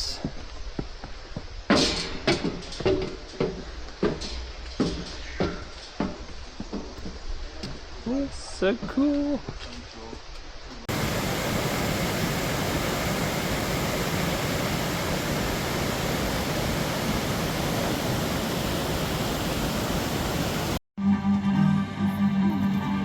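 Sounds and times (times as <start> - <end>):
waterfall rushing: 10.9 - 20.8.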